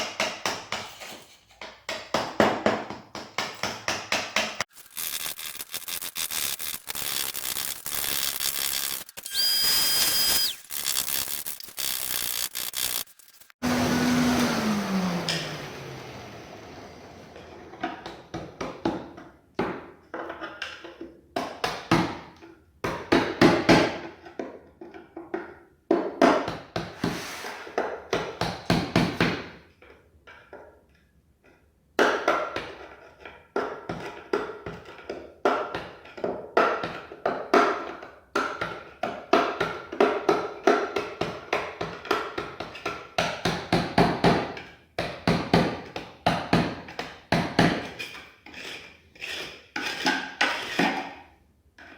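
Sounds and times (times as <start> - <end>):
hand tool chipping at floor: 0.0 - 9.1, 32.1 - 51.2.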